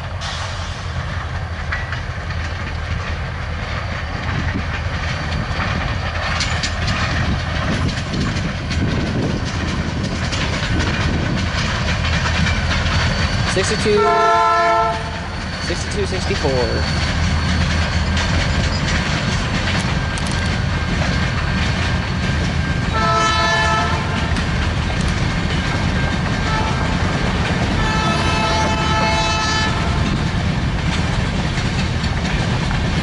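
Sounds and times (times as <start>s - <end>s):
freight cars rumbling: 0.0s - 33.0s
wheels clacking over rail joints: 0.0s - 33.0s
train horn: 13.9s - 15.2s, 22.9s - 24.3s, 26.4s - 27.0s, 27.7s - 30.2s.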